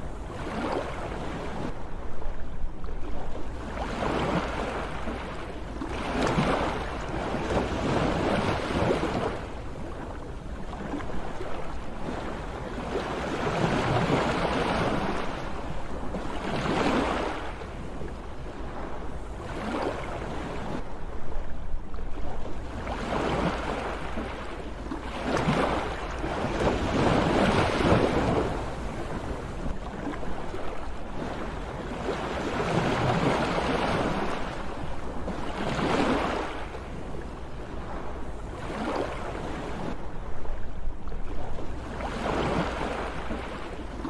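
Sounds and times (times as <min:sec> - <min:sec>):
low rumble of surf: 0:00.0 - 0:44.0
sea waves breaking: 0:00.0 - 0:44.0.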